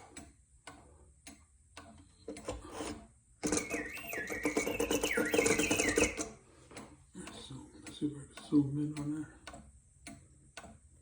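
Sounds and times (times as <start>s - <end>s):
rasp of clockwork: 2.3s - 6.4s
mechanical bird whistle warbling: 3.4s - 6.4s.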